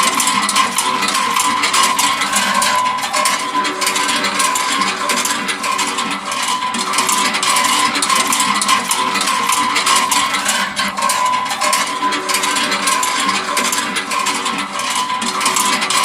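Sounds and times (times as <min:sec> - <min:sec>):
plastic gears clicking rattle: 0:00.0 - 0:16.0.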